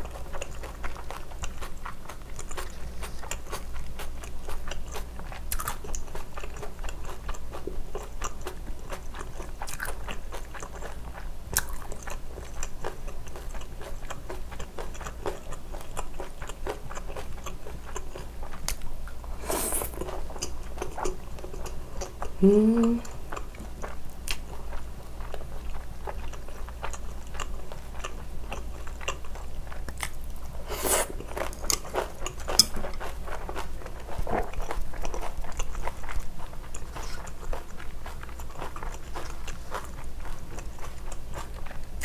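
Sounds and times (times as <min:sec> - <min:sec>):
crunchy chewing: 0:00.0 - 0:22.4, 0:23.0 - 0:42.0
brief hissing rush: 0:19.4 - 0:20.0
person humming mm: 0:22.4 - 0:23.2.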